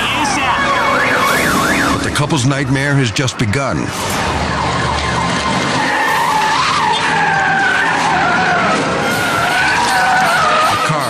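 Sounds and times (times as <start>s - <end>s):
car tyres screeching: 0.0s - 11.0s.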